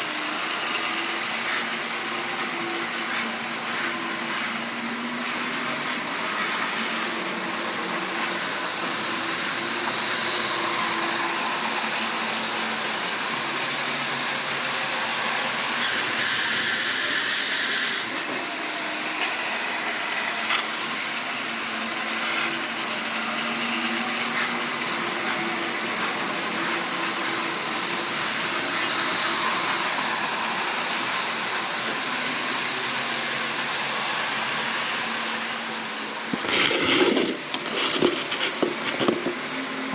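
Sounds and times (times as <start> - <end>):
electric motor hum: 35.5 - 39.9.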